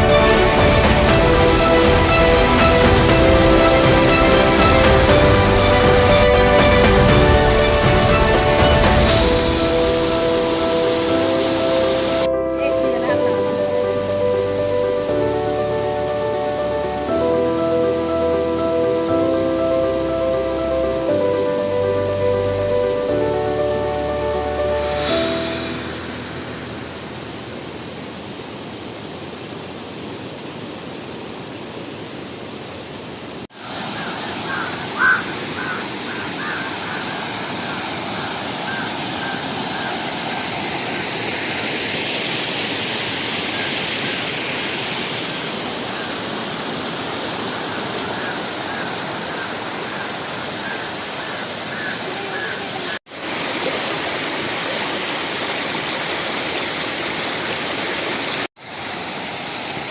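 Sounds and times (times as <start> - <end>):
rushing stream and waterfall: 0.0 - 59.9
bird calls: 33.6 - 40.6, 47.2 - 53.0.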